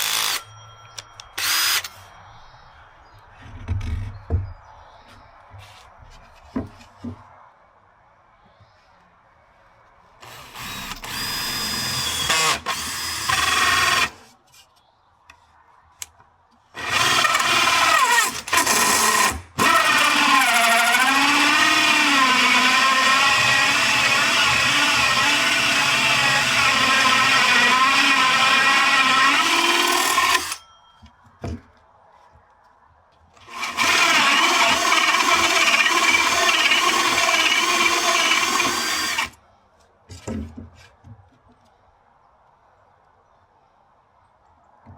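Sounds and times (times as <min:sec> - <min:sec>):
power drill whining into wood: 0:00.0 - 0:00.5, 0:01.3 - 0:01.9, 0:10.2 - 0:14.2, 0:16.8 - 0:30.6, 0:33.4 - 0:39.4.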